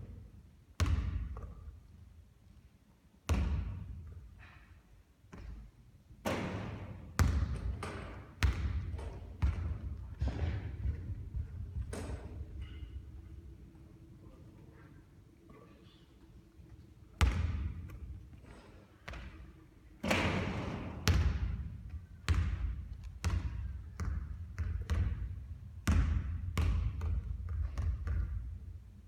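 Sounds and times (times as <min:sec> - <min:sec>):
basketball bouncing on hard court: 0:00.8 - 0:01.6, 0:03.3 - 0:03.8, 0:06.3 - 0:12.4, 0:17.2 - 0:18.1, 0:20.1 - 0:28.6.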